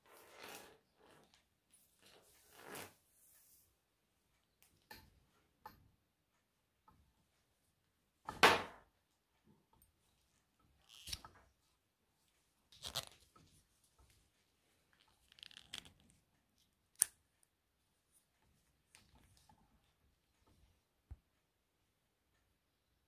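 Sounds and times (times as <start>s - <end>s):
rubbing and scraping handling noises: 0.0s - 3.9s, 10.2s - 16.8s.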